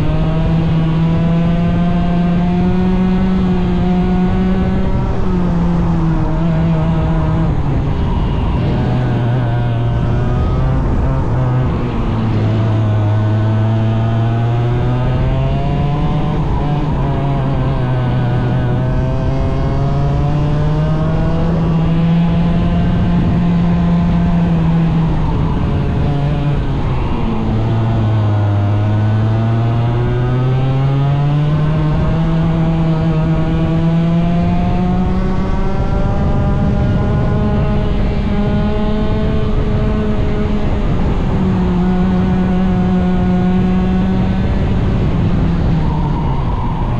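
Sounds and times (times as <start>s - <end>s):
racing engine revving: 0.0s - 46.9s.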